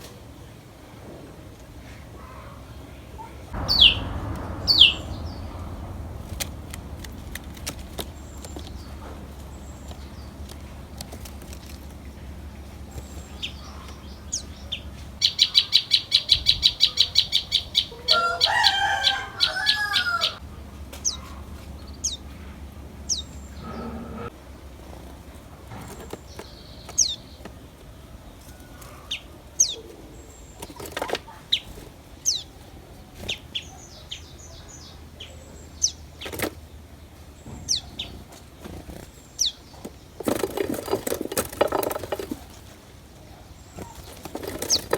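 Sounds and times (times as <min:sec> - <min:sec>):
songbirds calling: 0:00.0 - 0:44.9
low steady hum: 0:03.5 - 0:15.2
sharp bird chirps: 0:03.6 - 0:10.4.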